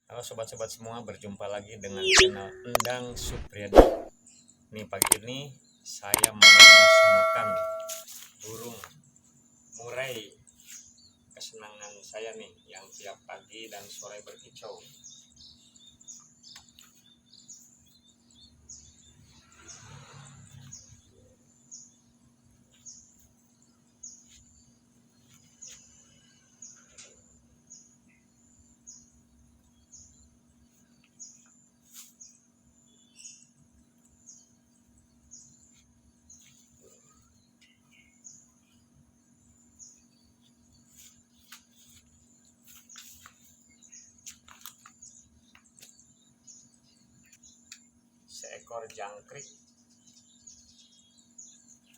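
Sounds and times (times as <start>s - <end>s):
bird chirping: 2.0s - 4.1s, 6.2s - 8.0s
sharp clicks: 2.0s - 4.1s, 5.0s - 5.2s, 6.2s - 8.0s.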